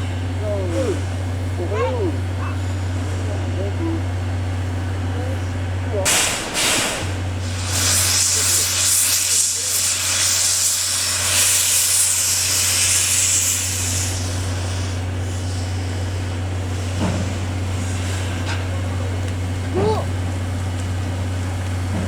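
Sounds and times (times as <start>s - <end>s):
steam hissing from locomotive: 6.0s - 22.0s.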